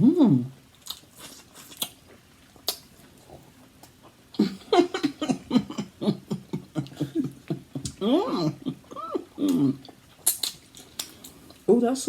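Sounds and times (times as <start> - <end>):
mouth clicks and smacks: 2.6 - 4.1, 4.9 - 8.0, 8.7 - 11.4.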